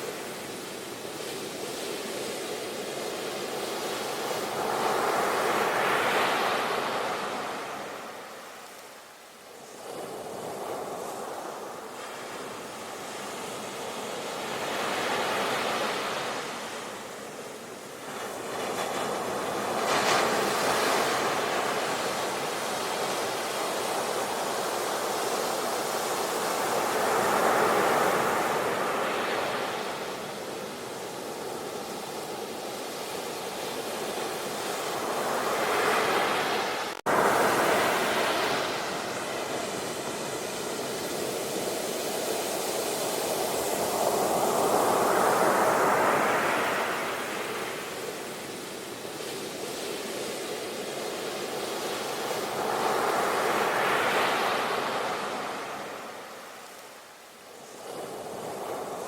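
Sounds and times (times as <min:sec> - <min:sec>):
ocean waves breaking: 0:33.7 - 0:48.6.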